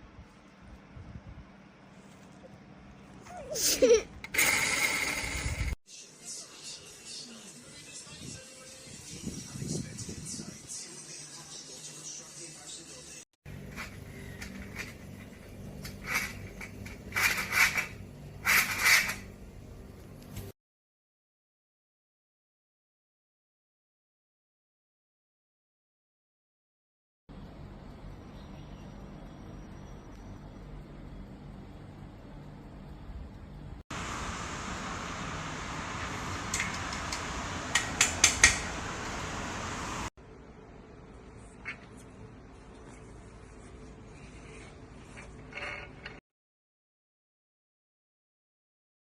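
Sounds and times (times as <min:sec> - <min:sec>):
steady hiss: 0:34.0 - 0:40.1.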